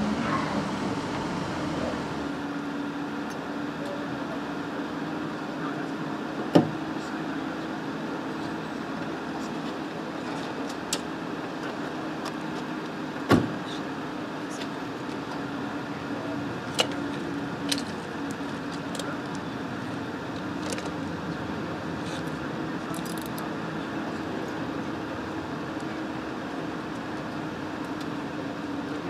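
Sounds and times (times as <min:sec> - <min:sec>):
car engine idling: 0:00.0 - 0:02.8.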